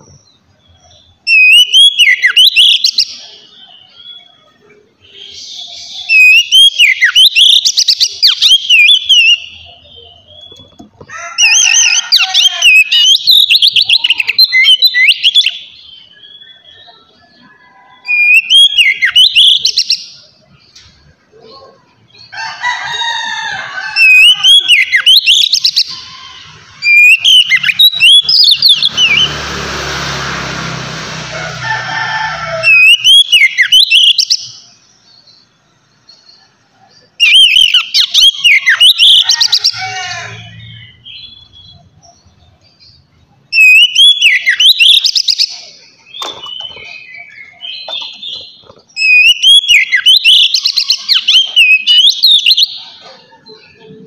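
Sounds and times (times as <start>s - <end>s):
bird singing whistled phrases: 1.3s - 4.4s, 5.0s - 10.6s, 11.5s - 17.0s, 18.0s - 19.9s, 24.0s - 26.0s, 26.8s - 29.3s, 32.7s - 34.4s, 37.2s - 39.3s, 43.6s - 45.6s, 46.2s - 52.8s.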